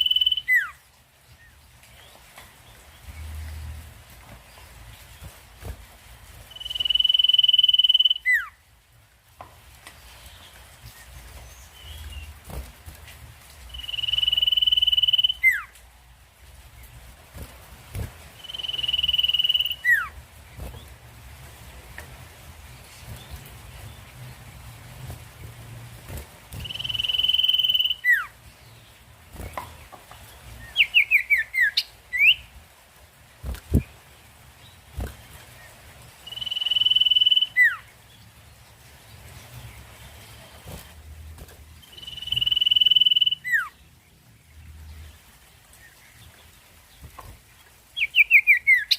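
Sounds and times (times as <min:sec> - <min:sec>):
bird high whistles: 0:00.0 - 0:00.8, 0:13.8 - 0:15.7, 0:18.4 - 0:20.1, 0:26.6 - 0:28.3, 0:42.0 - 0:43.7.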